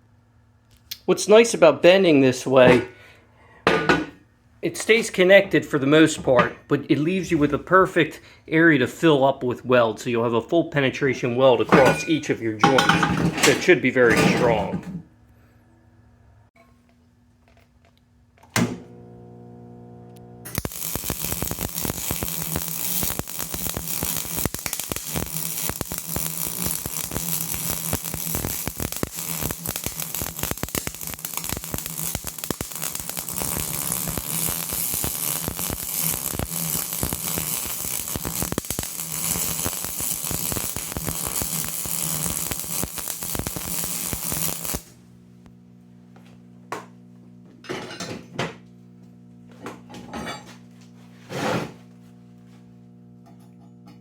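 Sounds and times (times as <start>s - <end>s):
welding arc crackle: 18.9s - 45.6s.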